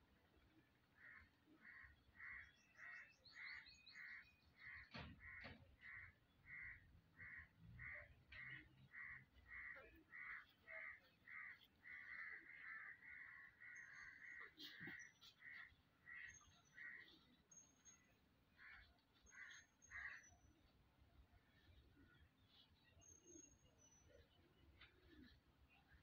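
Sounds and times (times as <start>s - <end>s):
bird calling: 1.0s - 20.8s.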